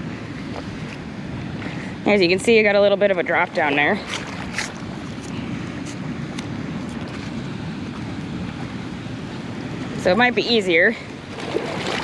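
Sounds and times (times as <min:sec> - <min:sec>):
water pouring roar: 0:11.3 - 0:12.0.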